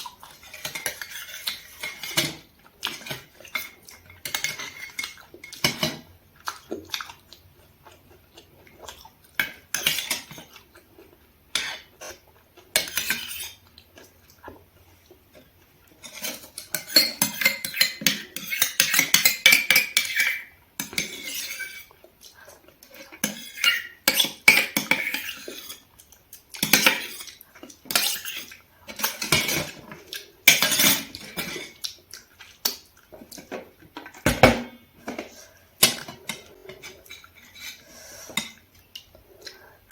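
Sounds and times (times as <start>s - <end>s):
utensils clinking and scraping dishes: 0.3s - 6.1s, 12.8s - 13.6s, 16.0s - 21.9s, 22.8s - 25.9s, 26.6s - 31.8s, 33.2s - 38.6s.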